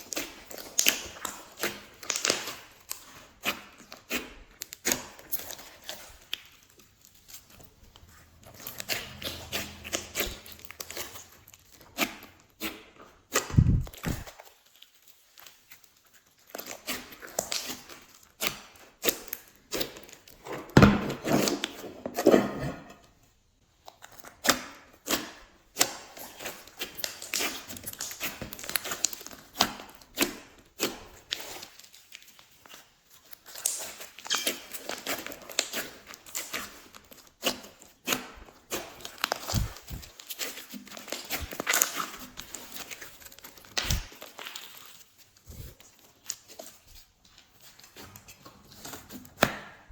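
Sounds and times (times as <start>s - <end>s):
sticky slime clicks and crackles: 0.0s - 7.5s, 13.3s - 20.4s, 23.8s - 45.0s.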